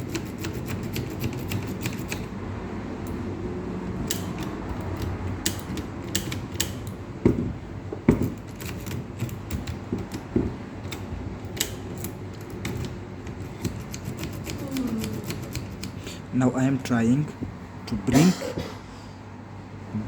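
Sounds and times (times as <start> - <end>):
key rattling in ignition lock: 8.2 - 16.0.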